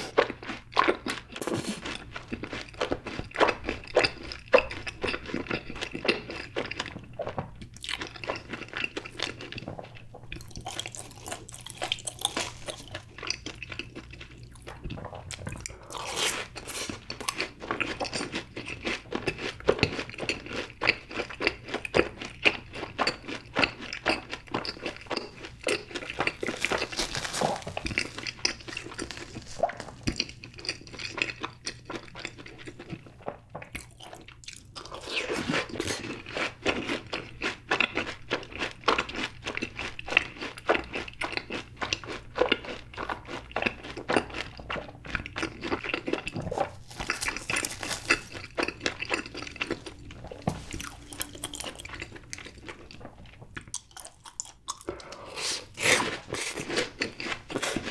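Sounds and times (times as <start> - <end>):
chewing mouth sounds: 0.0 - 57.9
crisp crunching: 1.4 - 2.0, 25.4 - 30.3, 46.0 - 53.0.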